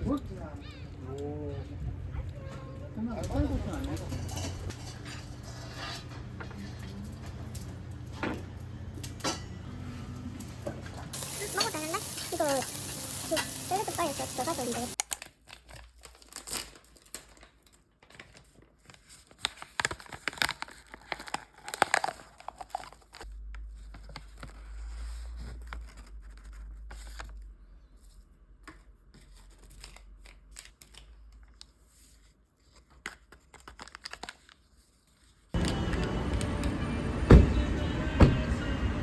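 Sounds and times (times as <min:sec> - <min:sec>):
packaging crinkling and tearing: 0:13.8 - 0:27.4, 0:29.2 - 0:36.0.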